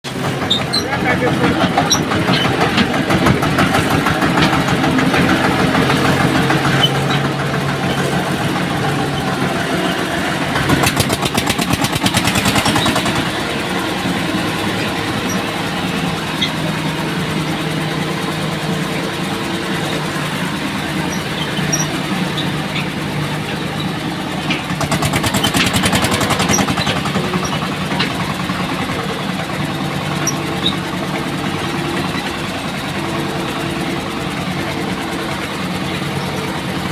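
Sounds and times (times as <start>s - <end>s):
diesel tractor engine running: 0.0s - 36.9s.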